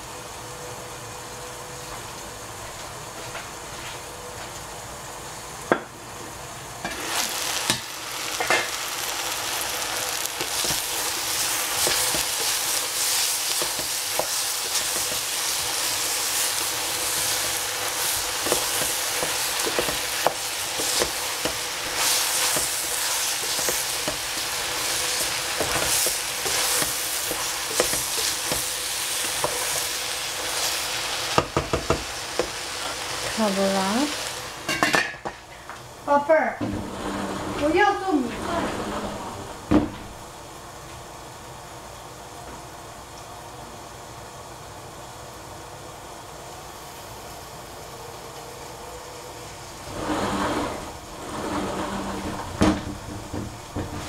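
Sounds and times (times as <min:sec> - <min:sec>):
vegetables sizzling in a pot: 0:00.0 - 0:54.0
wooden spatula scraping and clacking: 0:16.4 - 0:33.6, 0:49.8 - 0:54.0.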